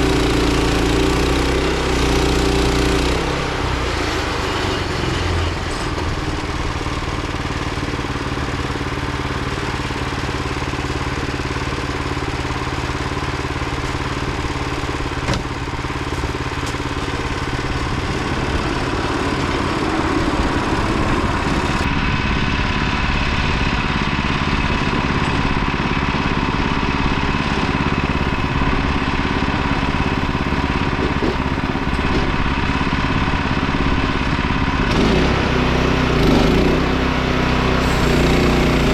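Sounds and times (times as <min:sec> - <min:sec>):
band sawmill engine running: 0:00.0 - 0:38.9
high steady whine: 0:13.8 - 0:31.0.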